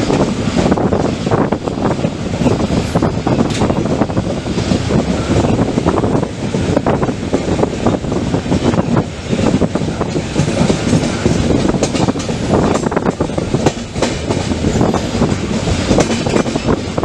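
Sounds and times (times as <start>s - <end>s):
train coach rumbling: 0.0s - 17.0s
wheels clicking over track: 8.6s - 17.0s.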